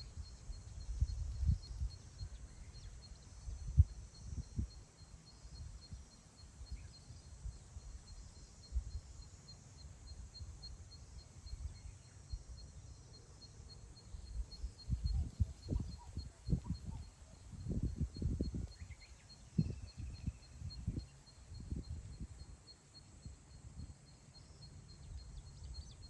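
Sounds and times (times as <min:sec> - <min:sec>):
wind buffeting the microphone: 0:00.0 - 0:04.8, 0:14.1 - 0:22.6
faint bird chirps: 0:00.0 - 0:26.0
faint pulsing high chirp: 0:00.0 - 0:26.0.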